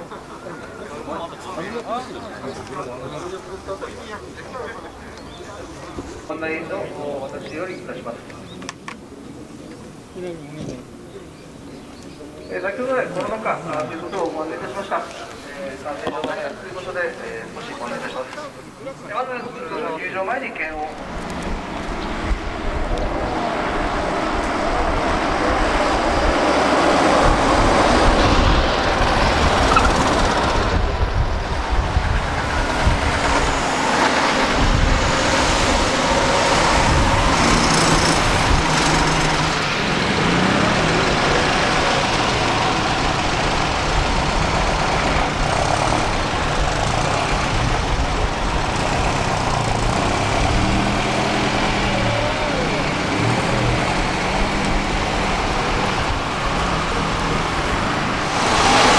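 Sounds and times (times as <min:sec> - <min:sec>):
three-wheeled truck engine running: 0:21.0 - 0:58.9.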